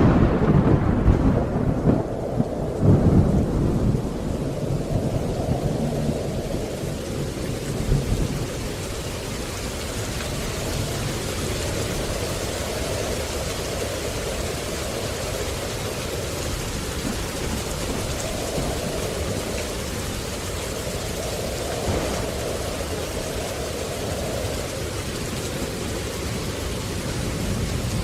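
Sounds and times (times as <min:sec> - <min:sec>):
steady rain falling: 0:00.0 - 0:28.0
low rumble: 0:21.3 - 0:24.5.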